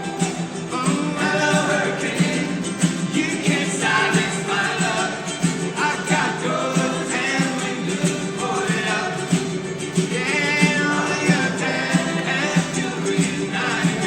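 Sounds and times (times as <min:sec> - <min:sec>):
person singing: 0:00.0 - 0:14.0.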